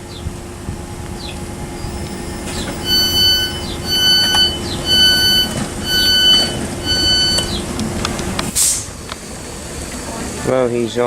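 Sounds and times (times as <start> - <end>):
train steady hum: 0.0 - 11.0
door-closing warning beeps: 2.4 - 7.7.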